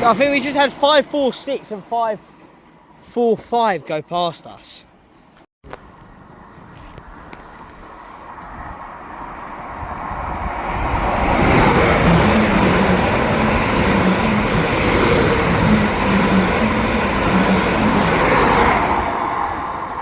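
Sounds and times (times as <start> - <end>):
train wheel and air rush: 5.7 - 20.0.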